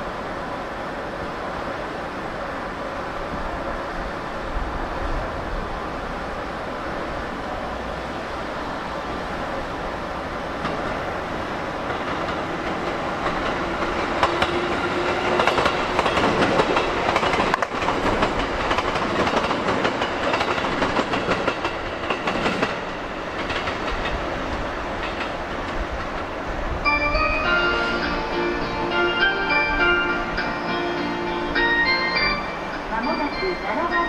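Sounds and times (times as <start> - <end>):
electric train passing: 0.0 - 34.0
train wheels clacking on rail joints: 11.8 - 26.4.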